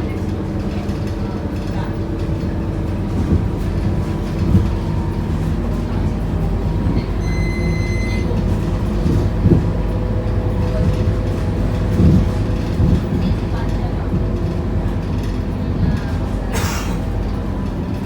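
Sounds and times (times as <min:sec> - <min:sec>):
bus diesel engine running: 0:00.0 - 0:18.0
bus knocks and rattles: 0:00.0 - 0:18.0
electronic beep: 0:07.2 - 0:08.2.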